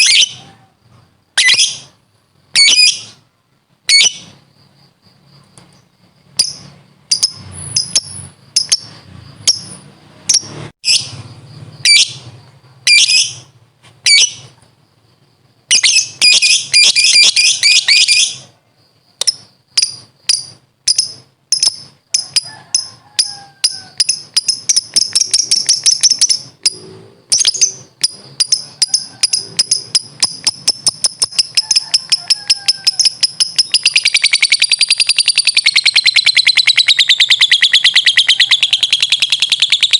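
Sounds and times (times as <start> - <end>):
lovebird chattering chirps: 1.4 - 2.0, 2.6 - 3.2, 6.3 - 11.2, 12.8 - 14.5, 15.7 - 18.5, 19.2 - 39.9.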